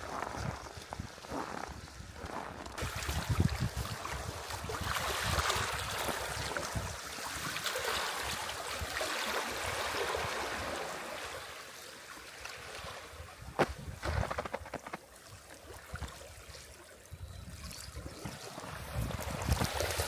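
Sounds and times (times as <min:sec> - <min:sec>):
wind buffeting microphone: 0:00.0 - 0:07.1, 0:13.3 - 0:14.8, 0:17.1 - 0:20.0.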